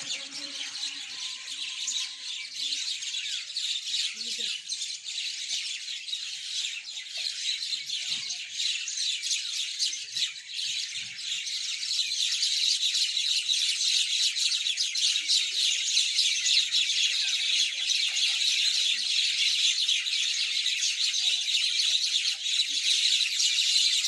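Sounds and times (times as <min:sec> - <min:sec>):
mynas chattering: 0:00.0 - 0:04.8.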